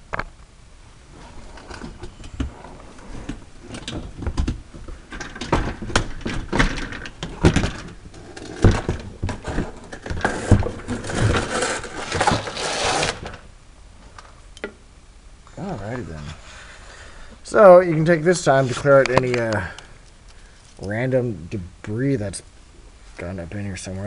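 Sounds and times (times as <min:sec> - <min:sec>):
rough scraping rustle: 0:09.4 - 0:13.4.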